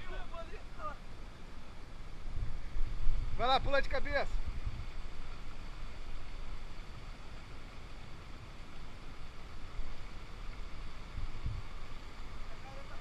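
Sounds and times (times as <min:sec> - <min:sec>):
wind buffeting microphone: 0:02.0 - 0:07.0, 0:10.9 - 0:12.0.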